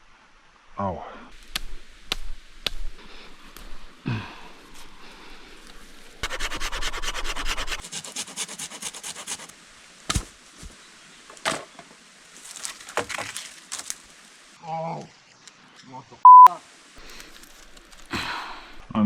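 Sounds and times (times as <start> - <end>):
sharp snaps of dry wood: 1.3 - 3.8, 8.8 - 11.9
dry wood rubbing and scraping: 5.6 - 9.5.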